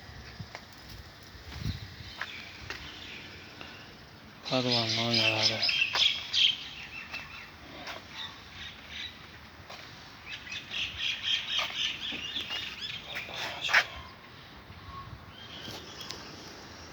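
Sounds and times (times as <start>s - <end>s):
birds chirping and squawking: 4.5s - 16.9s.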